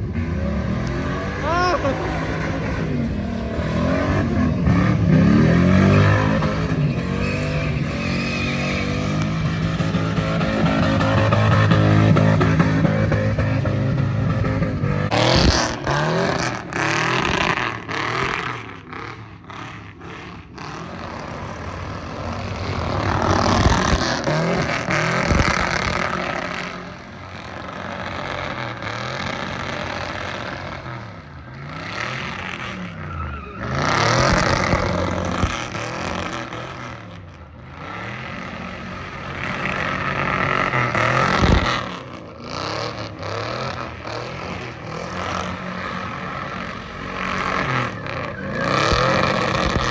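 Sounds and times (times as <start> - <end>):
car engine revving: 0.0 - 49.9.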